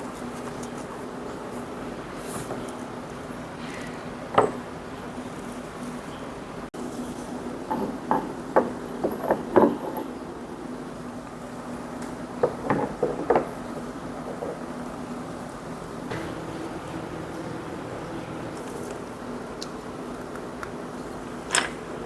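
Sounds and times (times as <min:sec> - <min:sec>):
steady low hum: 0:10.3 - 0:22.0.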